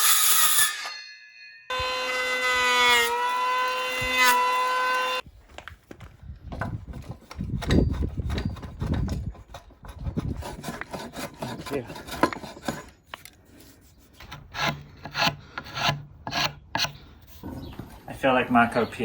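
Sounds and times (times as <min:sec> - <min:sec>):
scraping and rubbing on wood: 0:06.9 - 0:18.8.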